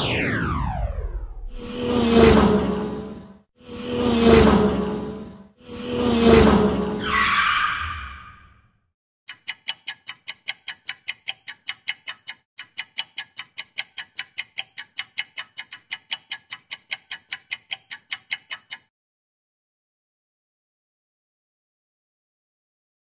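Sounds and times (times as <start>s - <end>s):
sharp ticking: 9.3s - 18.9s.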